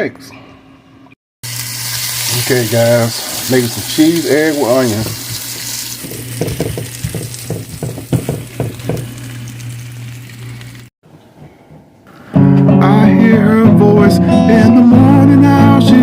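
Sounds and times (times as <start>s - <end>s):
eggs sizzling in a pan: 1.4s - 10.9s
guitar music with singing: 12.1s - 16.0s.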